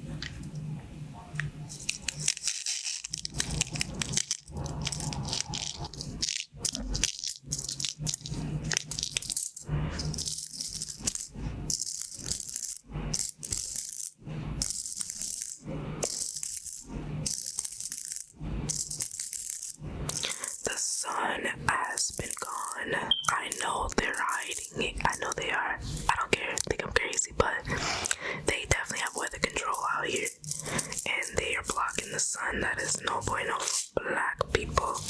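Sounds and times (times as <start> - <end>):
pins sliding and rattling: 1.7 - 20.8, 28.9 - 33.9.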